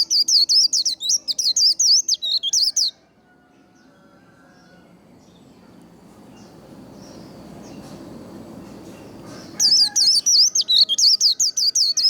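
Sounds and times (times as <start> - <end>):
faint high bird chirps: 0.0 - 3.0, 8.6 - 12.0
low background noise: 0.0 - 12.0.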